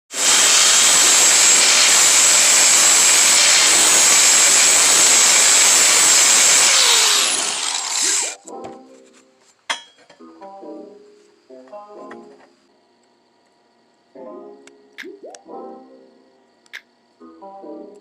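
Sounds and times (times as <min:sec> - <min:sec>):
power tool running: 0:00.1 - 0:08.4.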